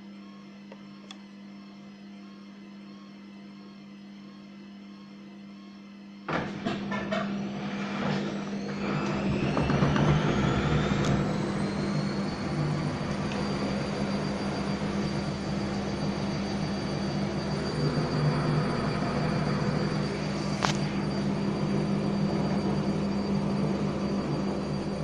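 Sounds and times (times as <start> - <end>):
washing machine motor whine: 0.0 - 25.0
click: 0.7 - 1.2, 20.6 - 20.8
low hum: 6.3 - 25.0.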